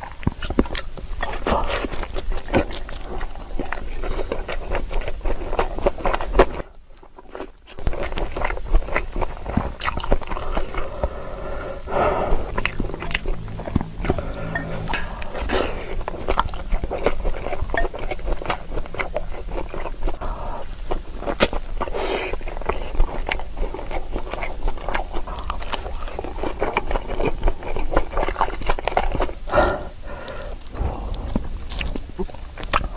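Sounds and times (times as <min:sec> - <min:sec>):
chewing and mouth smacking: 0:00.0 - 0:29.5, 0:30.3 - 0:32.9.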